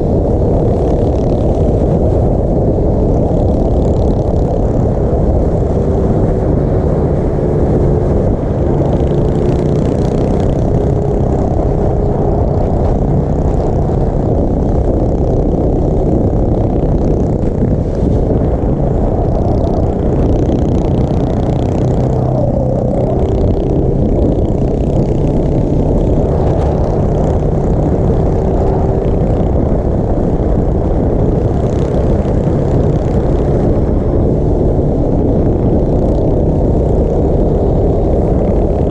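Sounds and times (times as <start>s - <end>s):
low rushing noise: 0.0s - 38.9s
small motorbike engine revving: 3.0s - 38.9s.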